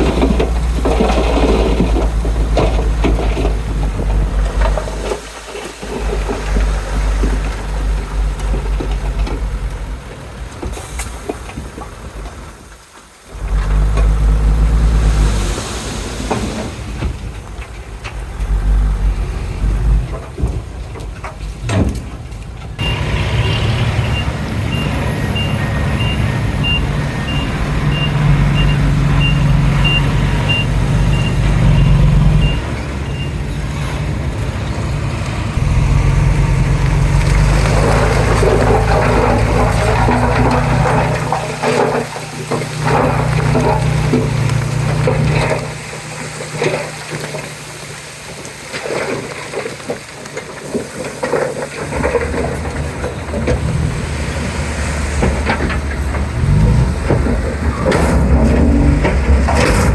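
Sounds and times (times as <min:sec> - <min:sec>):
bulldozer diesel engine: 0:00.0 - 0:59.9
reversing alarm beeping: 0:22.8 - 0:33.4.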